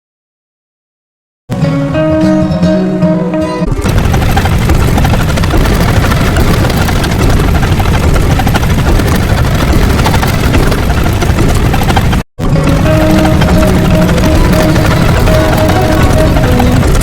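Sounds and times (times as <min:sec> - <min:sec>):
loud rumbling with low flutter: 0:03.7 - 0:17.0.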